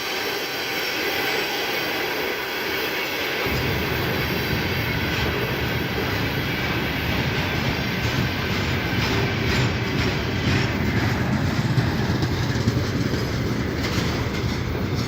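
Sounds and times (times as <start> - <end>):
freight train wagons rumbling: 1.8 - 15.0
wheel clatter: 3.4 - 15.0.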